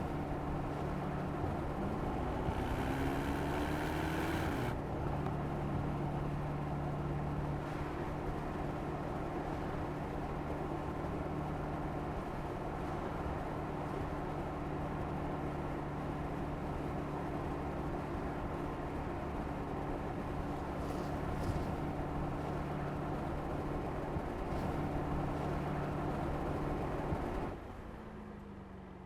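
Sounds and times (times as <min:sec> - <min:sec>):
car engine droning: 0:00.0 - 0:04.8.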